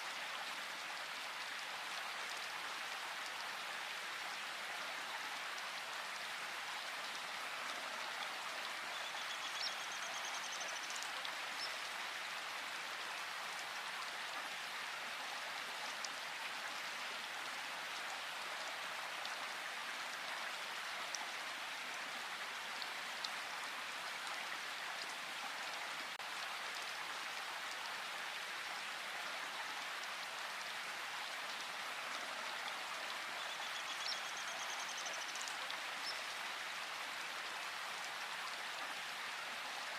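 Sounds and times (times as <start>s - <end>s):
rain falling: 10.9s - 34.4s.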